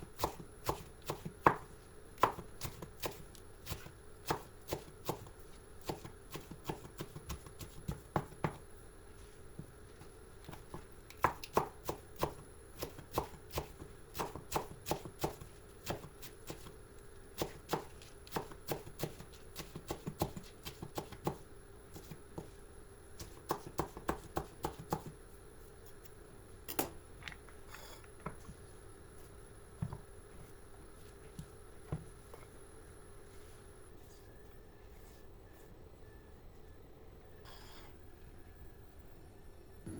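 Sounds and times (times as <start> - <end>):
knife chopping on cutting board: 0.2 - 8.6, 23.2 - 25.1.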